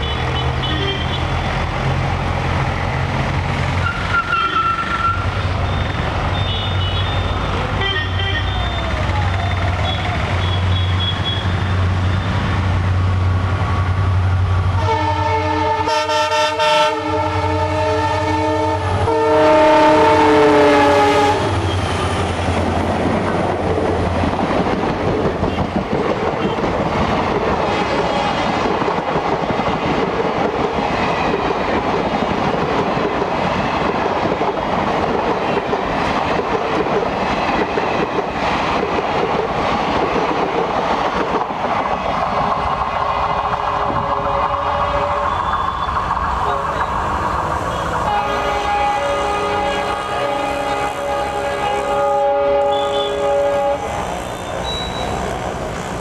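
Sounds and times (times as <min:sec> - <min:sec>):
multi-tone train horn: 0:00.0 - 0:01.4, 0:03.8 - 0:05.3, 0:06.4 - 0:09.2, 0:09.8 - 0:11.6, 0:14.8 - 0:22.3, 0:43.8 - 0:46.9, 0:47.6 - 0:56.0
diesel locomotive engine drone: 0:00.0 - 0:56.0
train wheels clattering over rails: 0:20.0 - 0:49.4.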